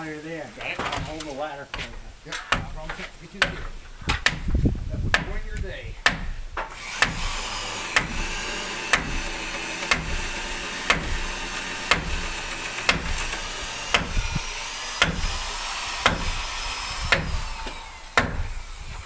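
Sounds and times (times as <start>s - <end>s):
hammer blows on wood: 1.8s - 7.3s, 11.9s - 19.0s.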